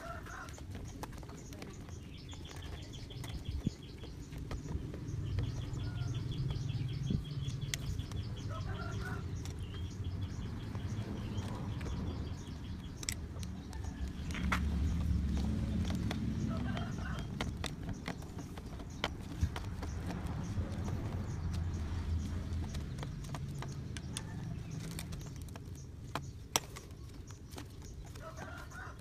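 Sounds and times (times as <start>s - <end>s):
bird chirping trill: 0.0s - 29.0s.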